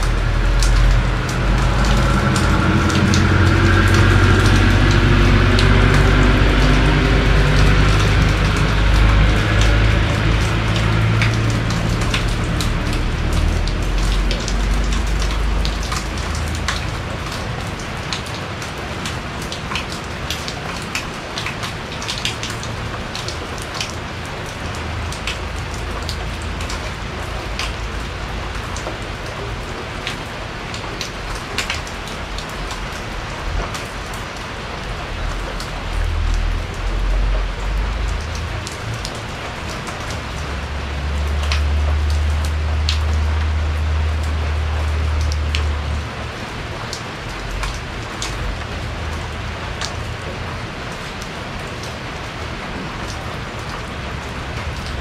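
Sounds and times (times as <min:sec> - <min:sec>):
low rumble: 0:00.0 - 0:17.9
sharp raindrops striking: 0:00.0 - 0:55.0
steady rain on a porch: 0:00.0 - 0:55.0.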